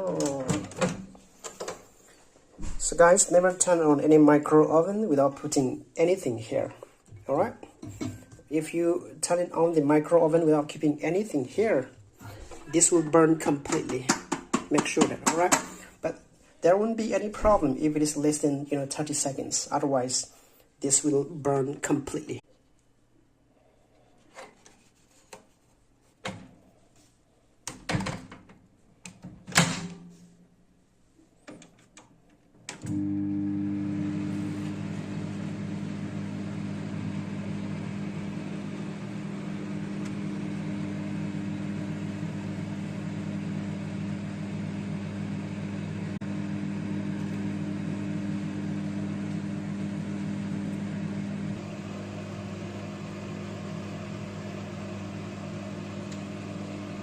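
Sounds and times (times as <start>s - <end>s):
microwave oven humming: 32.8s - 57.0s.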